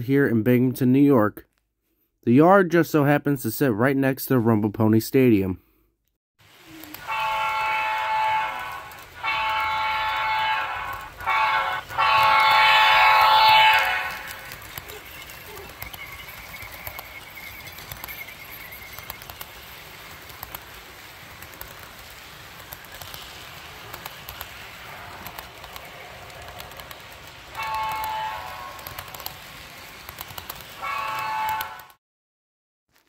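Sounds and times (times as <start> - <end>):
faint clicking of train: 6.5 - 32.0
train rumbling by: 6.5 - 32.0
locomotive horn chord: 6.8 - 14.6, 27.6 - 29.0, 30.8 - 32.0.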